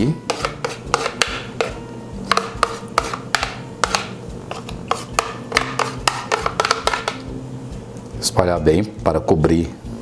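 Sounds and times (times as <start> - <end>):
utensil scraping a dish: 0.3 - 7.2.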